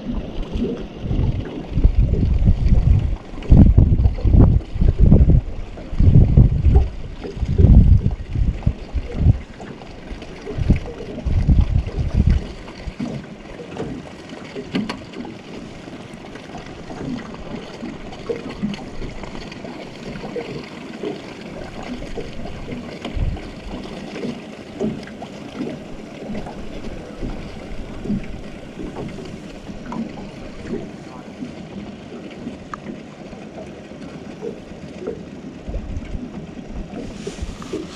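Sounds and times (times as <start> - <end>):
wind buffeting microphone: 0.0 - 13.3, 21.6 - 23.9, 25.8 - 31.2, 35.6 - 37.9
water slapping a boat: 0.0 - 37.9
river water hissing: 24.4 - 31.4, 36.9 - 37.9.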